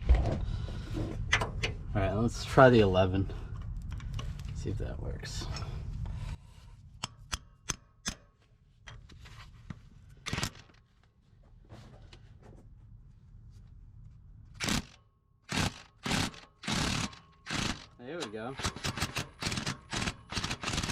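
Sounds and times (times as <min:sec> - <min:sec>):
impact wrench bursts: 0:14.6 - 0:20.9.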